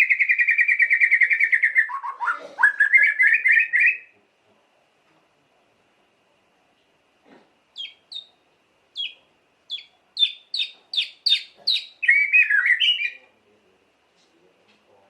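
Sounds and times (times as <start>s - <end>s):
bird singing whistled notes: 0.0s - 4.1s, 7.8s - 13.2s
bird warbling: 0.0s - 4.1s, 7.8s - 13.3s.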